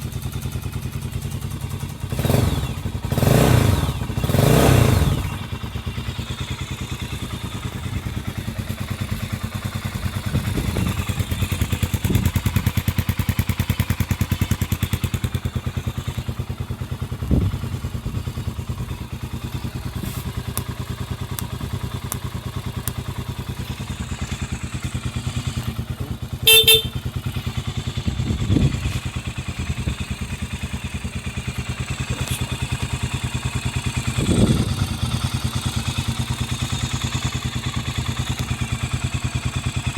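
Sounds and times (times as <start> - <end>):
motorcycle engine idling: 0.0 - 39.9
horn beep: 26.4 - 27.1.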